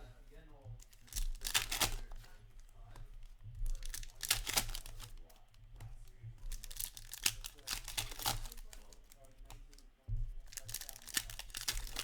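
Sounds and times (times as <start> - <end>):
card pack wrappers tearing: 0.9 - 2.2, 3.8 - 5.1, 6.5 - 9.0, 10.5 - 12.0.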